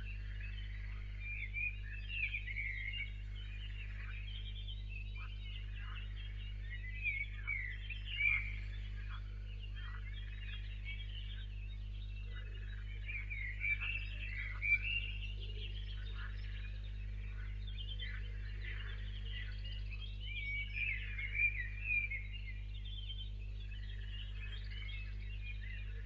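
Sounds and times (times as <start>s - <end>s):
birds chirping: 0.0s - 26.0s
steady low hum: 0.0s - 26.0s.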